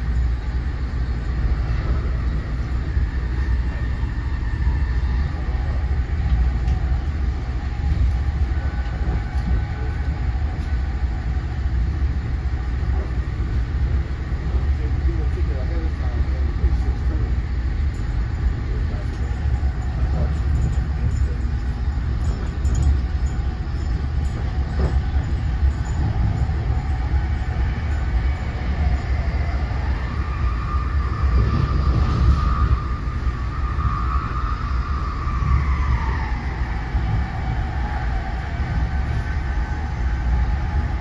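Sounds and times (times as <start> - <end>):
wheels rumbling on rail: 0.0 - 41.0
whining tone: 15.2 - 41.0.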